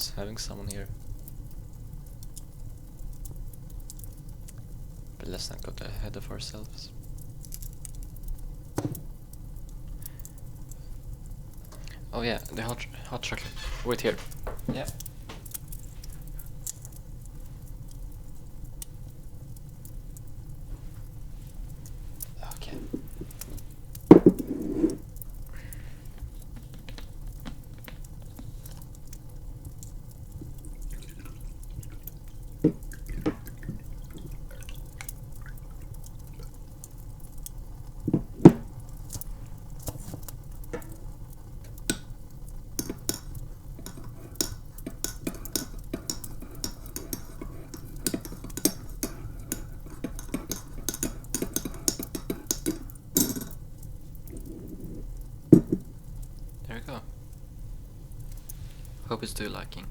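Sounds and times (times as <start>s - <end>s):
low steady hum: 0.0s - 59.9s
spoon stirring in mug: 22.4s - 25.1s, 30.4s - 36.6s, 38.1s - 39.2s, 39.9s - 56.0s
spoon clinking against mug: 42.8s - 53.6s, 55.6s - 55.9s.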